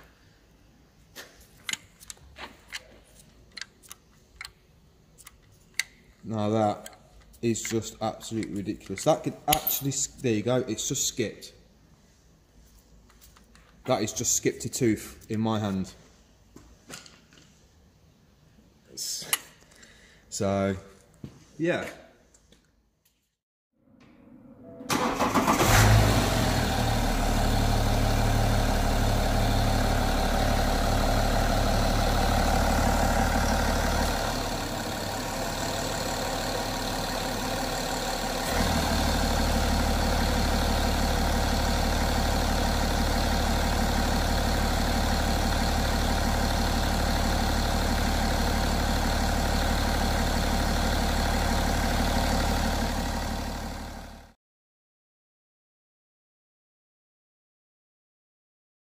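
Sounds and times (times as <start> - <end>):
diesel engine starting and idling: 24.8 - 54.4.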